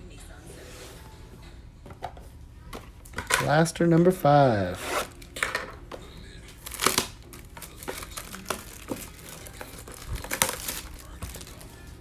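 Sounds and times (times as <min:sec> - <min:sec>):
plastic wrapping crinkling and tearing: 0:06.5 - 0:12.0.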